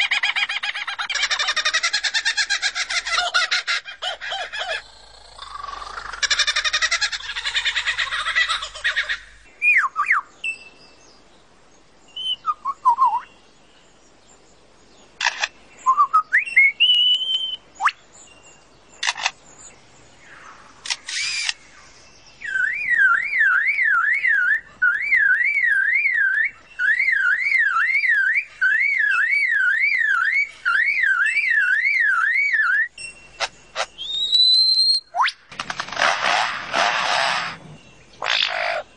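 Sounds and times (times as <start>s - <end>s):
bird calls: 0.0s - 11.2s, 14.9s - 38.9s
sharp shutter-like clicks: 19.0s - 19.4s, 20.8s - 21.6s, 35.5s - 37.4s
siren-like bird warble: 22.5s - 38.9s.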